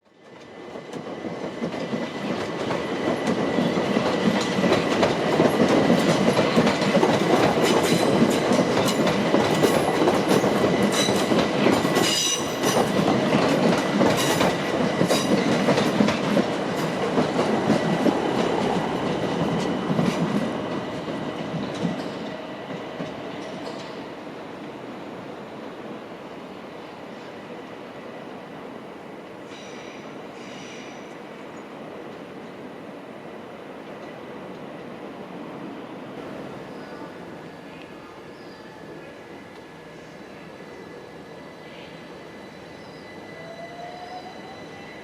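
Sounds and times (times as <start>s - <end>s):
train wheels clicking over rail joints: 0.4s - 20.5s.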